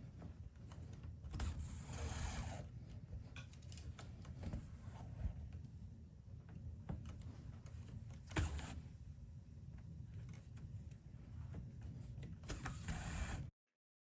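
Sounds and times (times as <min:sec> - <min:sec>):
light clicks and handling noise: 0:02.8 - 0:05.8.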